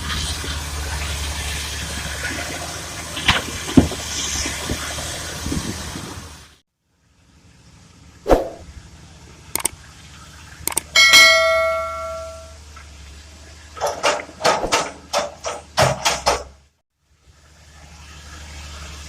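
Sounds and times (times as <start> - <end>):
diesel engine drone: 0.0 - 15.2, 17.0 - 19.0
heavy steel clang ringing: 11.0 - 12.6
sharp metal knocks and clatters: 13.8 - 16.6.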